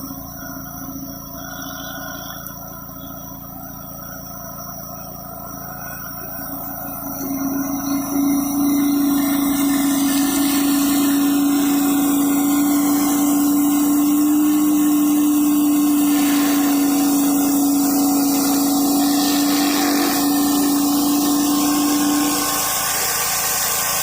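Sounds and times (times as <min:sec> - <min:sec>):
pressure washer engine running: 0:00.0 - 0:24.0
water spray hissing on concrete: 0:07.0 - 0:24.0.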